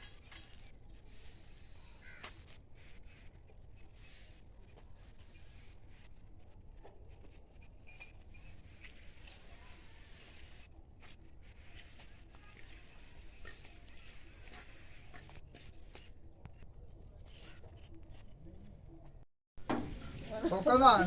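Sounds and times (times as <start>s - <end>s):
insects chirping: 0.4s - 2.5s, 12.4s - 15.3s.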